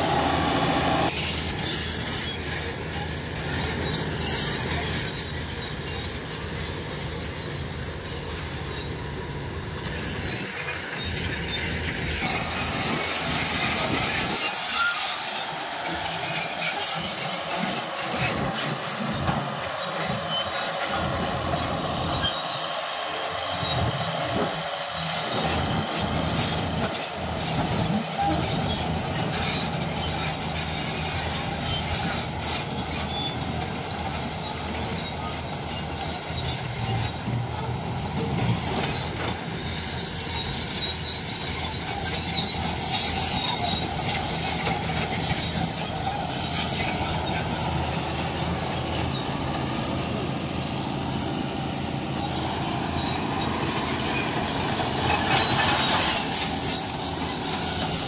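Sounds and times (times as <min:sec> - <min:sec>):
diesel engine running: 0:00.0 - 0:58.0
short high squeals: 0:00.0 - 0:58.0
steel tracks clattering: 0:01.1 - 0:50.4, 0:52.1 - 0:58.0.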